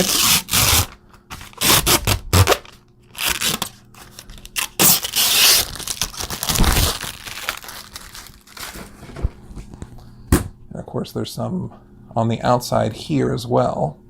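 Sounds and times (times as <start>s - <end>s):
plastic film peeling: 0.0s - 9.4s.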